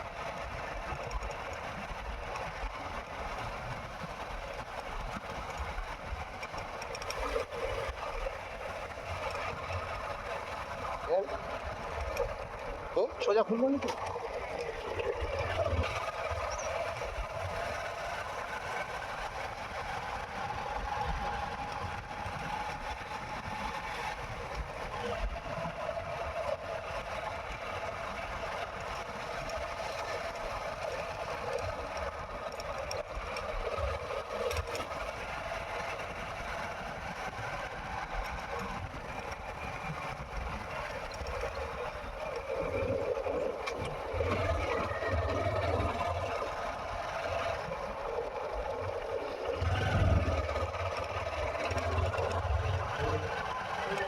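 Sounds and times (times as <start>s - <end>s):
motorcycle engine running: 15.5s - 54.0s
road noise: 23.6s - 54.0s.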